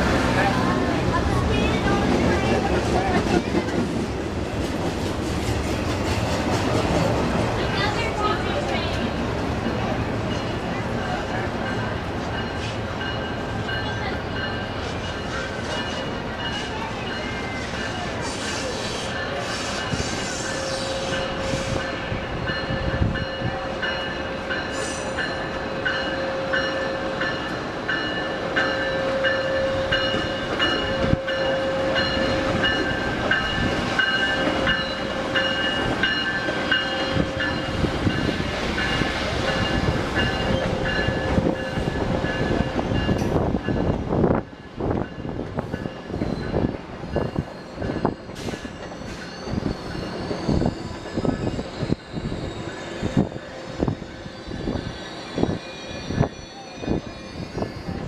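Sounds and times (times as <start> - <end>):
train rolling past: 0.0 - 58.0.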